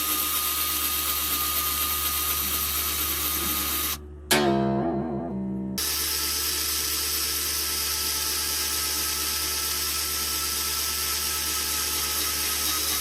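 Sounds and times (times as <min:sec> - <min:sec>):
low mains hum: 0:01.9 - 0:06.8.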